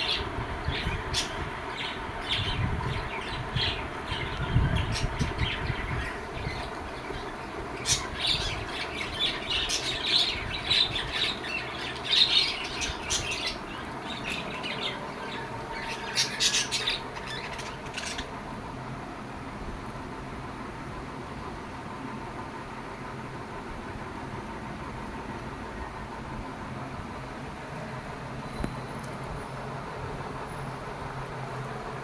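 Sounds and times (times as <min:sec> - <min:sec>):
lovebirds squawking: 0:00.0 - 0:18.3.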